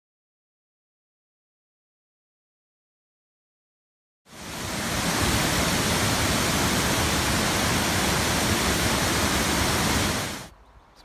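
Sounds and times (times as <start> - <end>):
waterfall rushing: 4.3 - 10.5.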